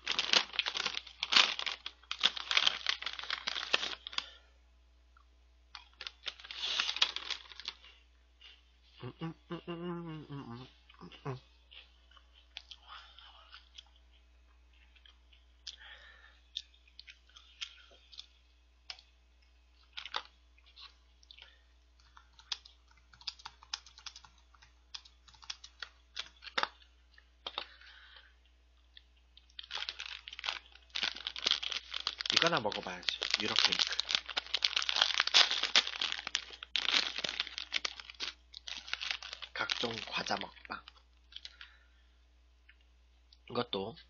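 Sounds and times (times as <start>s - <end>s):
plastic wrapper crinkling: 0.0s - 4.4s, 5.7s - 8.0s, 19.8s - 27.7s, 29.4s - 41.7s
crunchy snack chewing: 28.9s - 40.0s.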